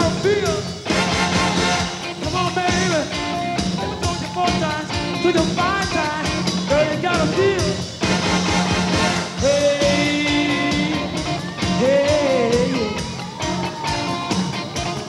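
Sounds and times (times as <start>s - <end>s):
driving drum beat: 0.0s - 15.0s
rock band playing live: 0.0s - 15.0s
man shouting: 3.8s - 6.1s.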